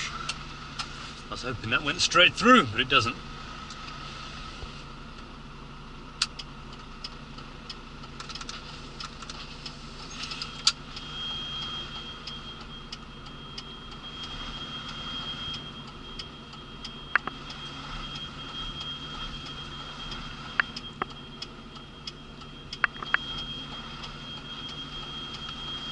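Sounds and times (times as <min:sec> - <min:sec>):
diesel engine running: 0:00.0 - 0:25.9
high-pitched tone: 0:10.0 - 0:25.9
clicks and taps: 0:17.2 - 0:17.4, 0:22.8 - 0:23.2.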